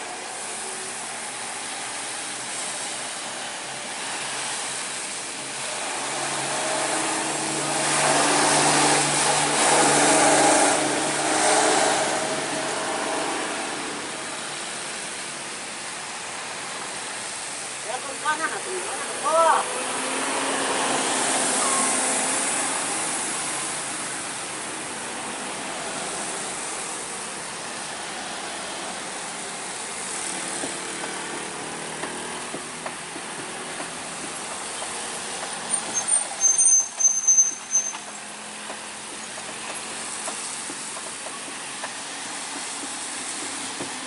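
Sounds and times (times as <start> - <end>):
road noise: 0.0 - 44.0
sharp high-pitched squeals: 21.4 - 22.2, 35.7 - 38.2.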